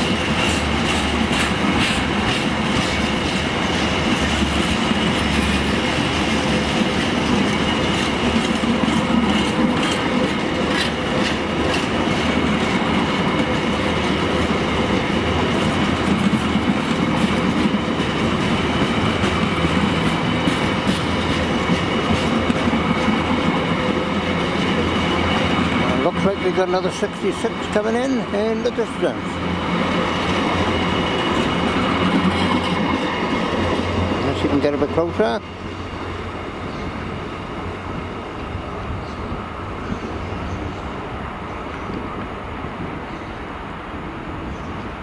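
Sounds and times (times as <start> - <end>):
wheels clicking over rail joints: 0.0 - 35.4
freight train wheels rumbling: 0.0 - 45.0.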